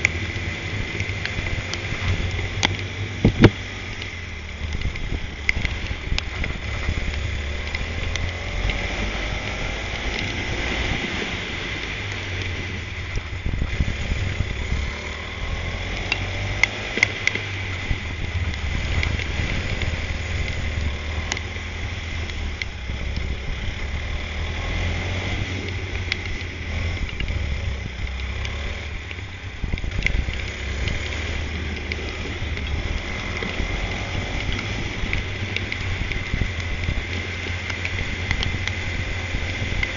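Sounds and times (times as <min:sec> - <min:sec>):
go-kart engine revving: 0:00.0 - 0:39.9
wind rumble on microphone: 0:00.0 - 0:39.9.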